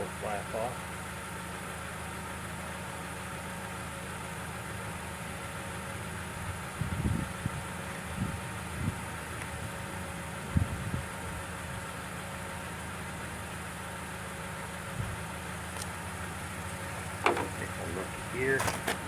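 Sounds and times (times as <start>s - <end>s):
lawn mower engine idling: 0.0s - 19.0s
short clunks: 16.7s - 19.0s.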